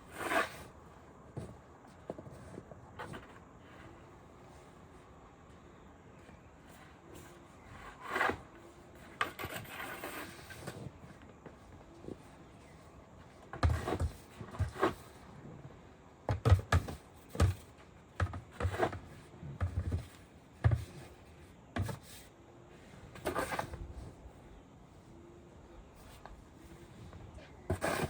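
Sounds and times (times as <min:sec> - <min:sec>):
irregular scrapes and knocks: 0:07.7 - 0:12.8, 0:13.5 - 0:22.2, 0:23.1 - 0:24.2, 0:25.9 - 0:28.0.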